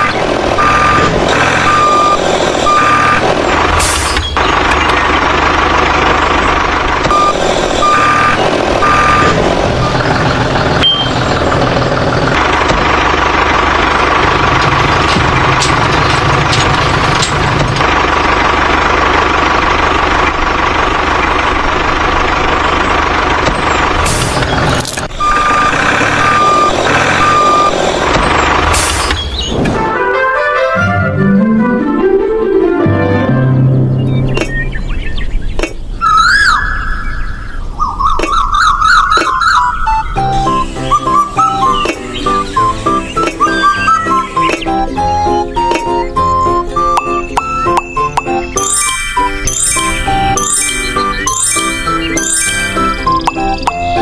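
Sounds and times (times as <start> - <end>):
low engine rumble: 0.0 - 30.0
reversing alarm beeps: 0.6 - 3.2, 7.1 - 10.0, 10.8 - 11.2, 25.2 - 27.8, 46.2 - 54.0.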